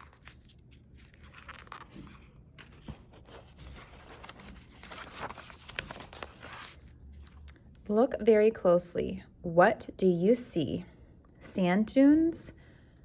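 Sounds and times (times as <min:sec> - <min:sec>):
book pages rustling: 0:00.0 - 0:07.6.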